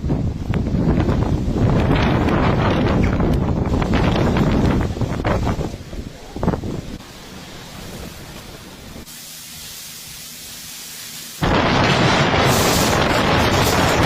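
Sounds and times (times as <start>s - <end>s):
wind buffeting microphone: 0.0s - 9.1s, 11.4s - 14.0s
faint steady hiss: 5.8s - 11.7s.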